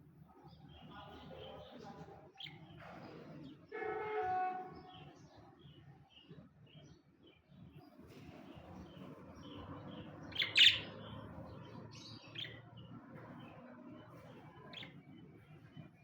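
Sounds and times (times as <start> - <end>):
budgerigars chirping: 9.9 - 12.7.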